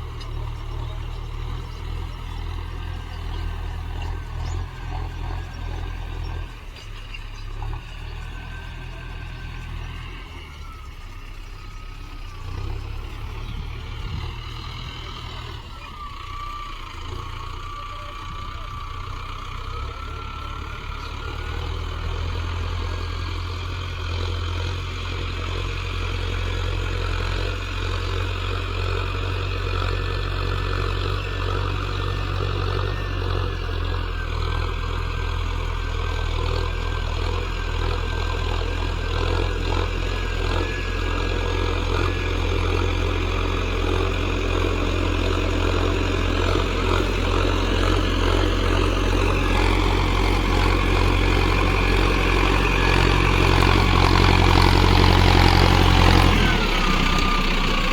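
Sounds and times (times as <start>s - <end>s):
tractor diesel engine under load: 0.0s - 57.9s.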